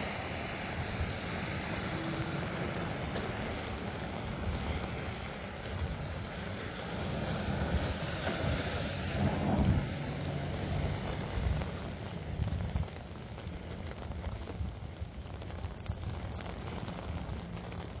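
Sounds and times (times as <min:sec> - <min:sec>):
car passing with tyre hiss: 0:00.0 - 0:12.4
low traffic rumble: 0:00.0 - 0:18.0
rain on an umbrella: 0:00.0 - 0:18.0.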